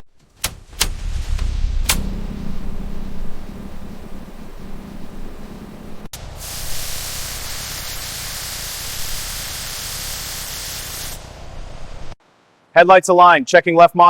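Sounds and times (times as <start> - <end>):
low background rumble: 0.0 - 6.1
steady hiss of air: 0.3 - 12.2.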